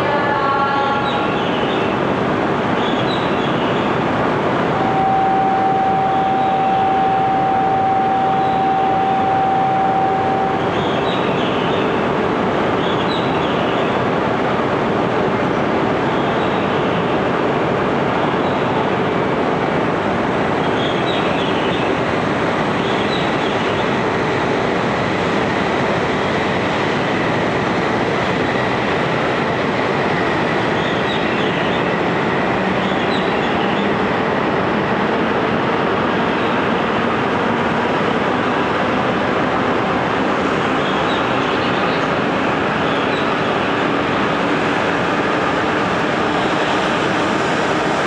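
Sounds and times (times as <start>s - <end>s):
train running rush: 0.0s - 48.0s
faint steady whine: 4.2s - 12.4s.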